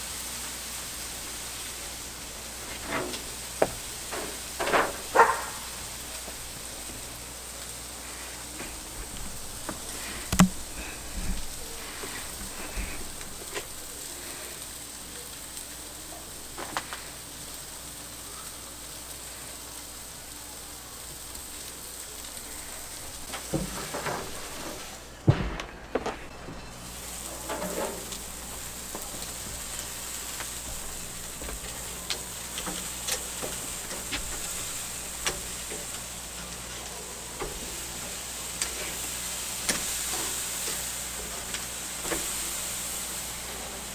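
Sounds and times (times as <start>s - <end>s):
meat sizzling on a grill: 0.0s - 43.9s
pops and crackles: 8.3s - 14.4s
loud knocks: 25.2s - 26.3s.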